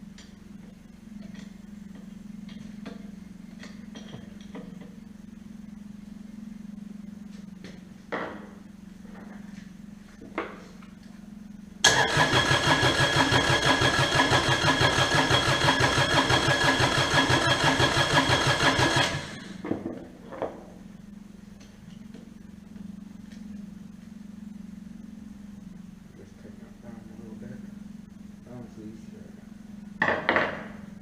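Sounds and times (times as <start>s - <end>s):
diesel engine cranking: 11.8s - 19.6s.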